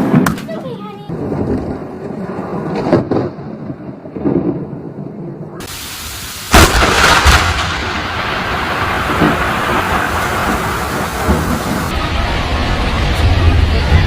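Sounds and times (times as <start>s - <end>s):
thunder rumbling: 1.0s - 14.0s
lightning strike crack: 1.1s - 14.0s
rain hissing: 5.5s - 14.0s.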